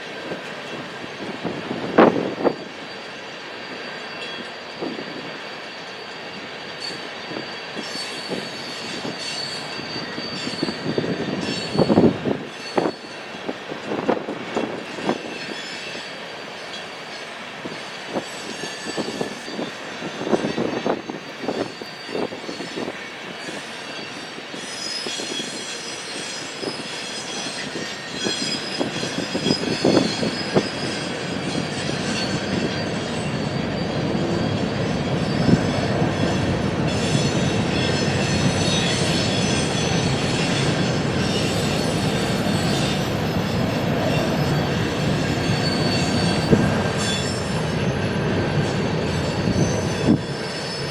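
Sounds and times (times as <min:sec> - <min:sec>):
high wheel squeals: 0:00.7 - 0:50.9.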